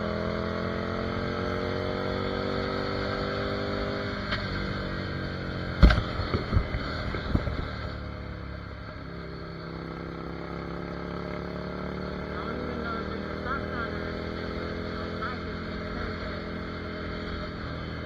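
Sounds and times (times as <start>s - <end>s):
motorcycle engine pulling: 5.5s - 8.2s
sharp thumps: 5.6s - 8.0s.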